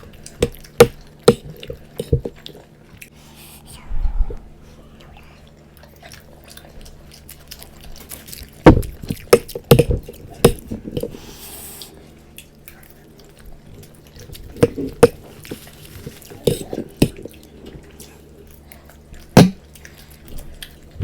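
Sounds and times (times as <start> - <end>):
wet chewing: 0.0 - 3.7, 4.3 - 21.0
steady low hum: 0.0 - 21.0.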